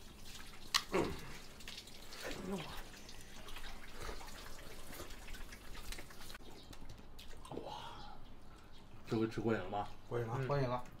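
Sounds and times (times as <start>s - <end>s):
wet chewing and lip-smacking: 3.6s - 7.6s.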